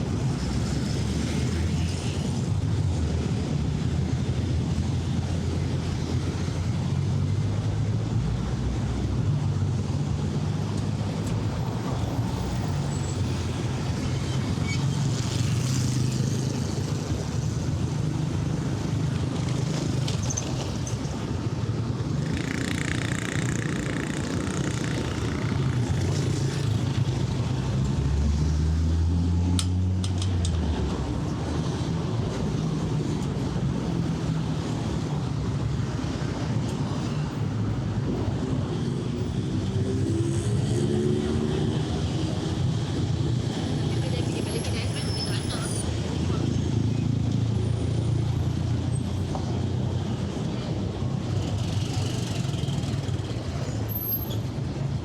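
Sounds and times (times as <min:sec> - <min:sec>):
traffic engines passing: 0:00.0 - 0:55.0.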